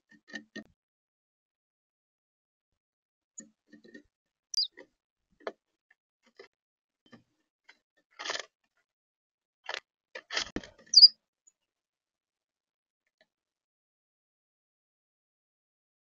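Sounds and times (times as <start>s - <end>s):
sharp high bird chirps: 10.9s - 11.1s.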